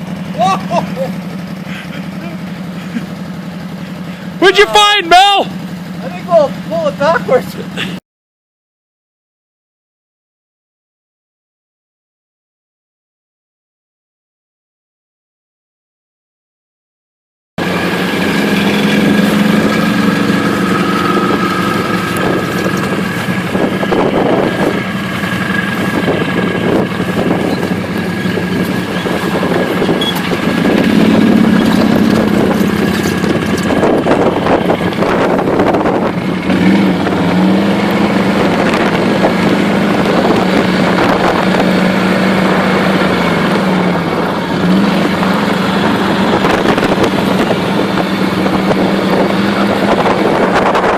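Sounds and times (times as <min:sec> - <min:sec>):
atv engine running under load: 0:00.0 - 0:08.0, 0:17.6 - 0:50.9
wind on microphone: 0:19.0 - 0:50.9.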